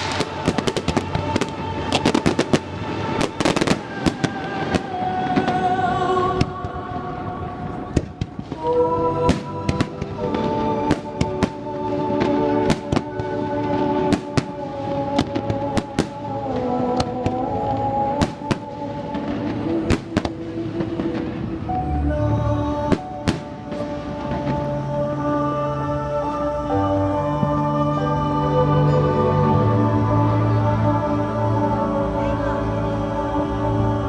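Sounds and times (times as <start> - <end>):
fireworks bangs: 0.0 - 21.7, 22.9 - 24.8
christmas music: 0.0 - 34.0.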